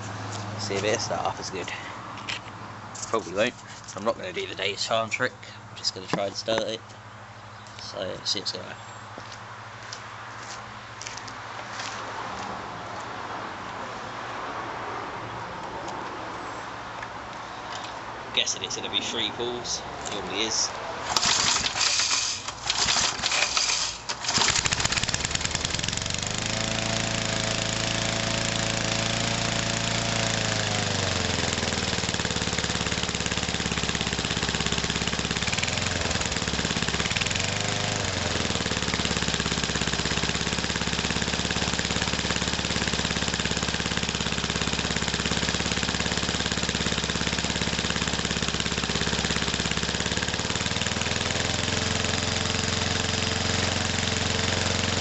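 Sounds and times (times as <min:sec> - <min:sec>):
lawn mower engine running: 0:20.0 - 0:55.0
starter cord pulls: 0:21.0 - 0:26.3, 0:32.4 - 0:40.4.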